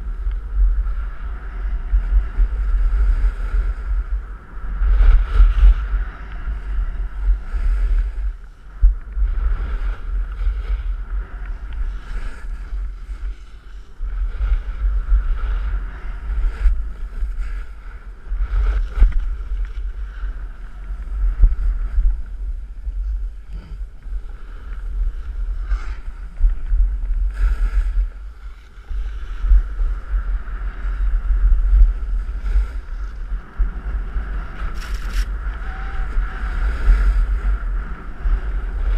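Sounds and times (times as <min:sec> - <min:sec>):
wind buffeting microphone: 0:00.0 - 0:38.9
ski edges scraping snow: 0:34.4 - 0:35.6.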